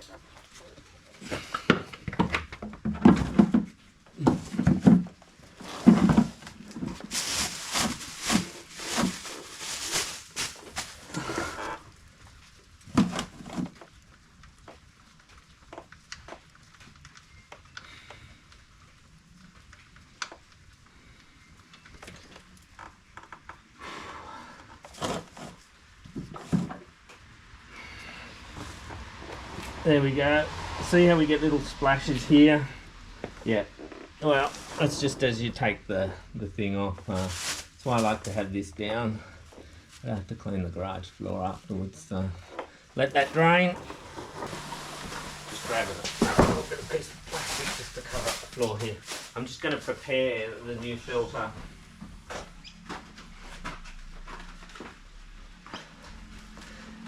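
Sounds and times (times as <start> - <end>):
rustling scraping sounds: 3.0 - 14.2, 24.8 - 26.9, 27.8 - 36.2, 37.0 - 40.1, 41.4 - 51.6.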